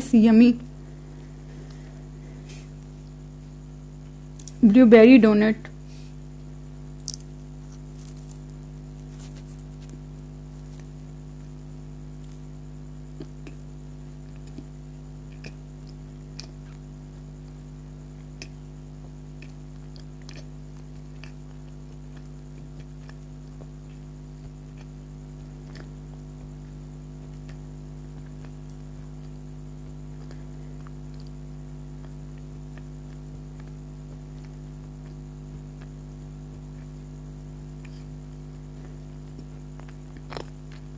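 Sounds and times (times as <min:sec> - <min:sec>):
low electrical hum: 0:00.0 - 0:40.9
person chewing: 0:06.9 - 0:16.8, 0:18.2 - 0:37.0, 0:37.7 - 0:40.9
mouth clicks and smacks: 0:07.0 - 0:07.8, 0:15.3 - 0:16.8, 0:18.4 - 0:18.6, 0:19.4 - 0:20.5, 0:25.6 - 0:26.0.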